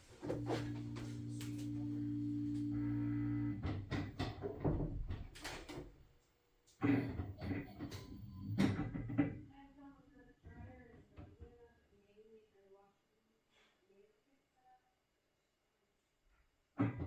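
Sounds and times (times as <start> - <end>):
washing machine motor hum: 0.0 - 5.4.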